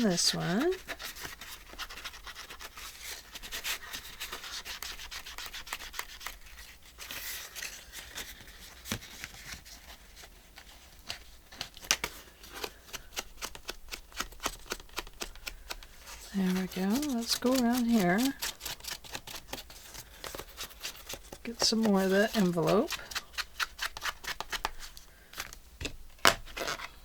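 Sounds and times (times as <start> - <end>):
scratchy rubbing on paper: 0.0 - 7.4, 16.0 - 24.7.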